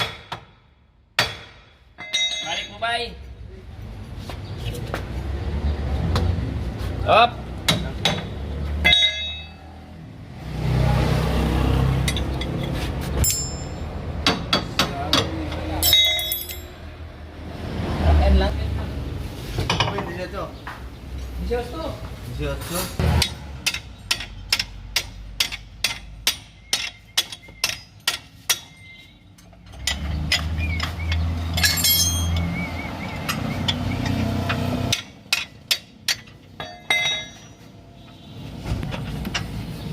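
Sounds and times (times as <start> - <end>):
sharp metal clinks: 2.0 - 3.0, 8.8 - 9.8, 12.1 - 14.0, 15.8 - 16.9, 26.2 - 32.6
hand tool tapping on metal: 12.1 - 16.6, 23.2 - 32.5.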